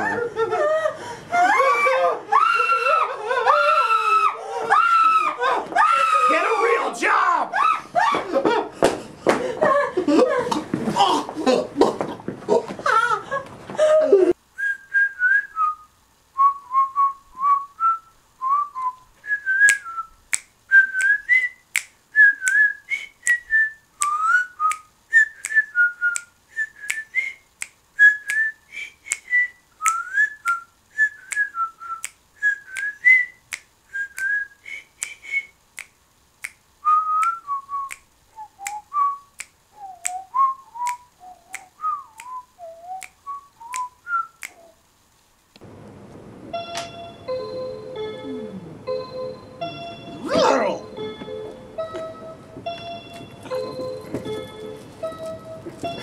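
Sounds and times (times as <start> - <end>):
person whistling a tune: 14.6 - 21.6, 22.2 - 27.4, 28.0 - 35.6, 36.8 - 44.6
finger snaps: 19.6 - 44.8.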